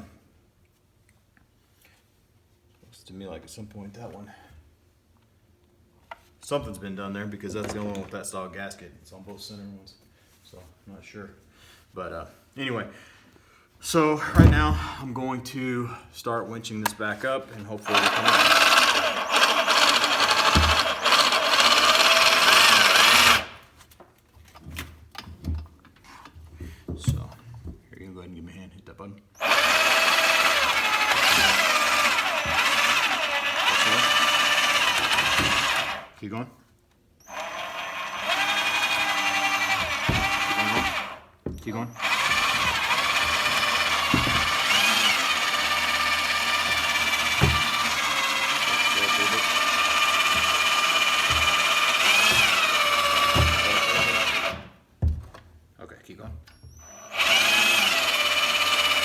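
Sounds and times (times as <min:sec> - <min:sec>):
electric winch motor running: 0:17.8 - 0:23.6, 0:29.4 - 0:36.1, 0:37.2 - 0:41.2, 0:41.9 - 0:54.7, 0:56.7 - 0:59.0.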